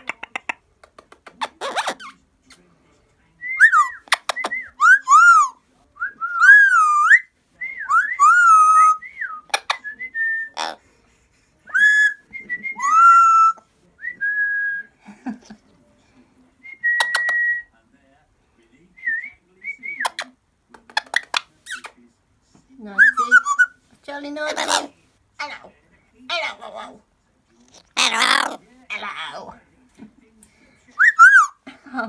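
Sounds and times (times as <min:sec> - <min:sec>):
parrot clicks: 0:00.0 - 0:01.5
parrot whistling: 0:03.6 - 0:05.6, 0:06.2 - 0:10.8, 0:11.7 - 0:13.6, 0:16.8 - 0:17.7, 0:23.0 - 0:23.8, 0:28.0 - 0:29.3, 0:31.0 - 0:31.6.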